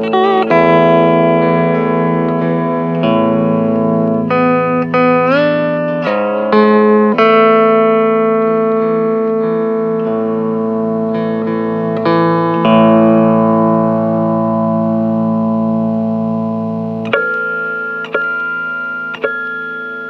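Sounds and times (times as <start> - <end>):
steel guitar sustained notes: 0.0 - 20.0.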